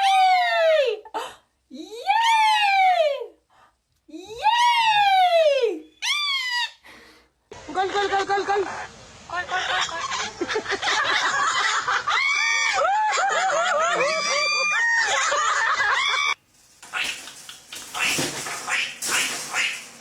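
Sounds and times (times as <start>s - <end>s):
parrot squawking and chattering: 16.9s - 19.9s.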